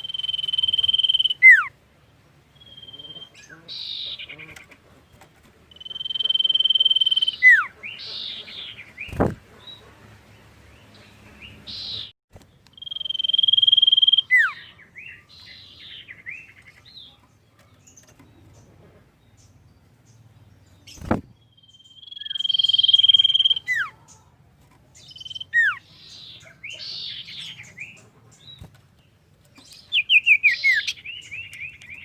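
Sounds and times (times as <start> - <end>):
bird whistling and chattering: 0.0 - 1.7, 2.6 - 4.6, 5.7 - 9.3, 12.8 - 14.7, 21.8 - 23.9, 25.1 - 25.8, 29.9 - 32.0.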